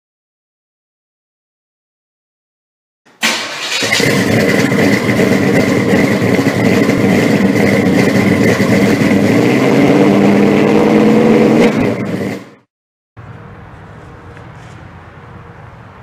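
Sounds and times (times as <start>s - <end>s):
loud car engine running: 3.2s - 14.8s.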